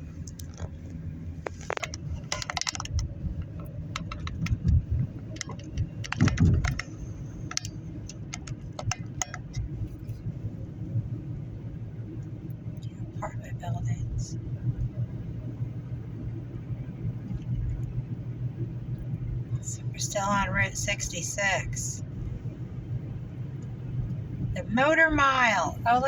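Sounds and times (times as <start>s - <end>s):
road rumble inside a car: 0.0s - 26.0s
light clicks and rattles: 0.2s - 10.3s.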